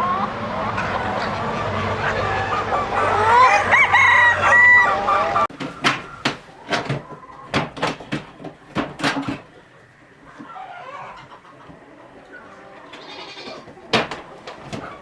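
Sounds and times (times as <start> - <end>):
poultry calling: 0.0 - 7.6, 9.5 - 15.0
chicken clucking: 0.0 - 15.0.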